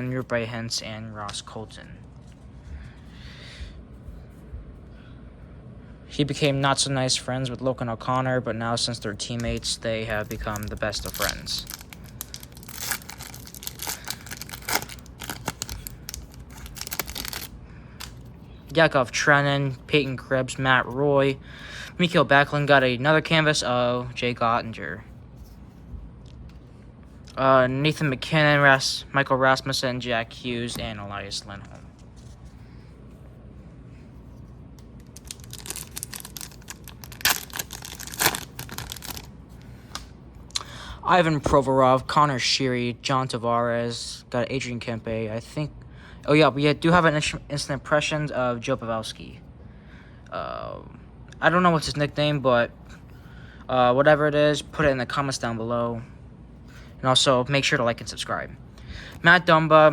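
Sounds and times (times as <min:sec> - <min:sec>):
foil wrapper crinkling: 0:09.4 - 0:18.2, 0:35.0 - 0:40.1.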